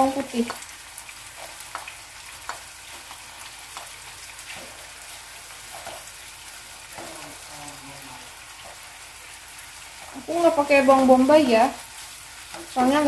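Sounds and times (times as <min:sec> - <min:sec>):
garlic and mushrooms sizzling: 0:00.0 - 0:13.0
spatula scraping and tapping pan: 0:01.3 - 0:04.9, 0:05.6 - 0:06.2.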